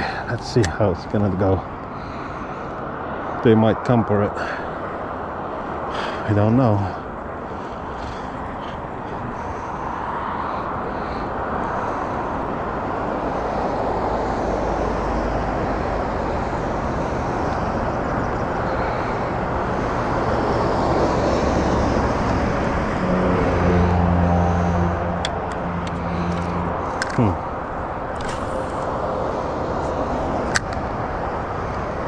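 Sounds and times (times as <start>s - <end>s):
deeper engine hum: 0.0s - 32.0s
propeller plane engine drone: 0.0s - 32.0s.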